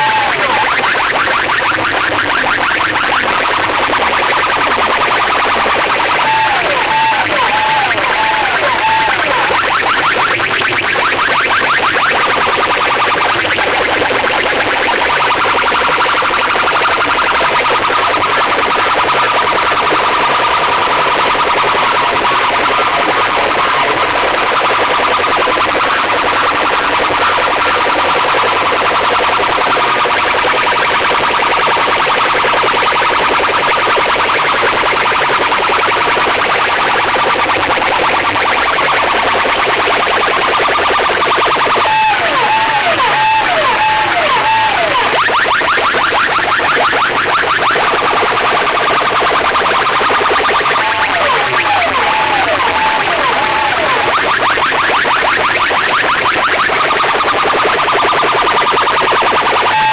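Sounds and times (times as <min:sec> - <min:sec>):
steady high tone: 0:00.0 - 0:01.3, 0:03.2 - 0:10.1, 0:36.8 - 0:46.3, 0:47.8 - 0:54.4
falling siren-like electronic tones: 0:00.0 - 0:59.9
loud distorted electronic music: 0:00.0 - 0:59.9.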